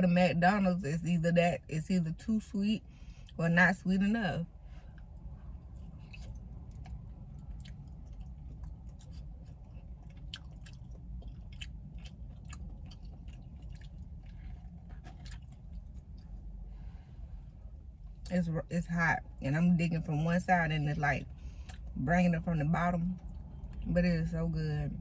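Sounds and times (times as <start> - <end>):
low car cabin rumble: 0.0 - 25.0
person chewing food: 4.8 - 16.6.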